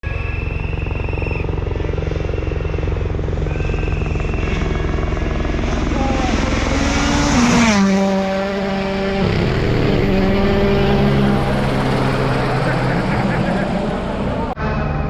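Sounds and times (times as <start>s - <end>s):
helicopter rotor chop: 0.0s - 14.6s
rally car engine approaching: 0.0s - 15.0s.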